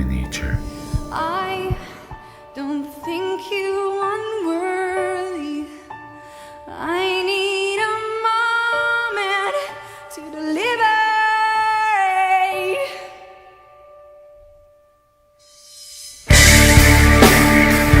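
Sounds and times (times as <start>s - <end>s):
music: 0.0s - 18.0s
woman singing with vibrato: 1.0s - 5.7s.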